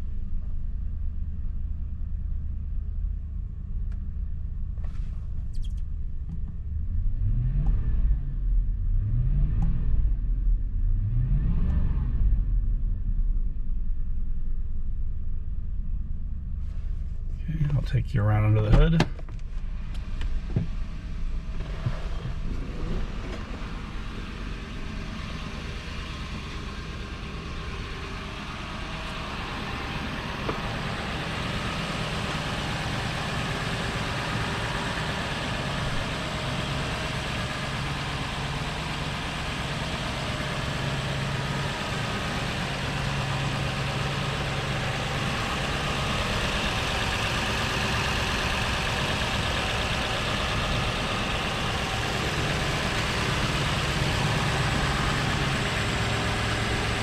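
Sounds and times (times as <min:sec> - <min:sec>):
engine idling: 0:13.6 - 0:57.0
engine knocks: 0:18.6 - 0:57.0.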